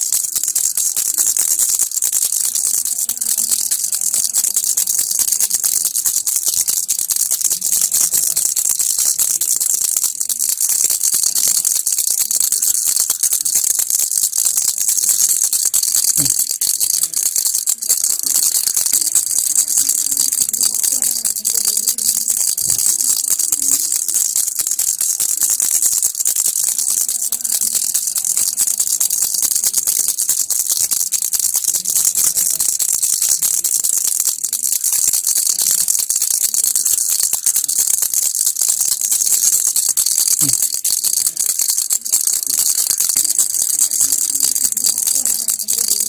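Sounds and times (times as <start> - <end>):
baby rattle shaking: 0.0 - 46.0.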